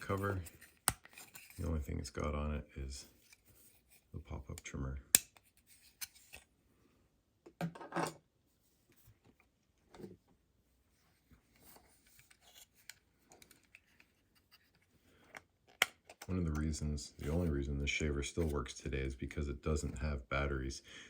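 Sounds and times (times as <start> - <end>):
plastic parts clicking: 15.3 - 16.3.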